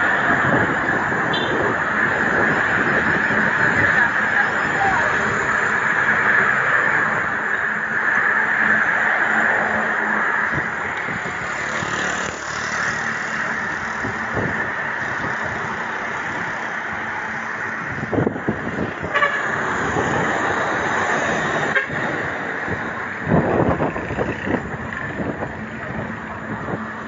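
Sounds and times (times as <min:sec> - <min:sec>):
road traffic: 0:00.0 - 0:27.0.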